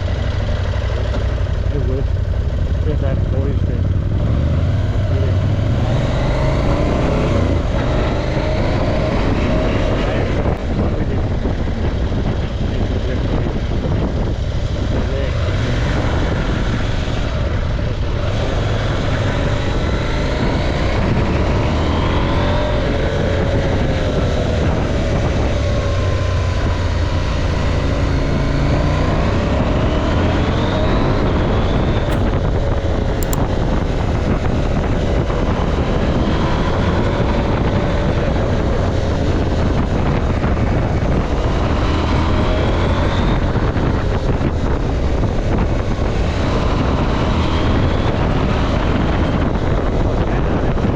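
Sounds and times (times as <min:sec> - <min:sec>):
motorcycle engine revving: 0:00.0 - 0:50.6
wind rumble on microphone: 0:02.7 - 0:50.9
brief clicks: 0:32.1 - 0:32.4, 0:33.2 - 0:33.4.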